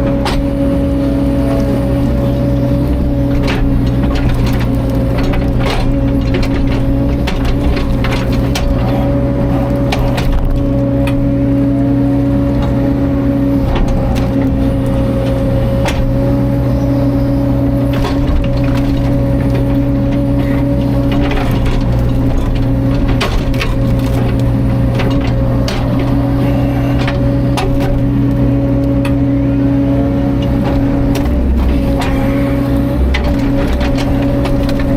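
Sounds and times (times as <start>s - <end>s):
excavator diesel engine running: 0.0s - 34.9s
sharp cracks and knocks: 17.9s - 26.2s.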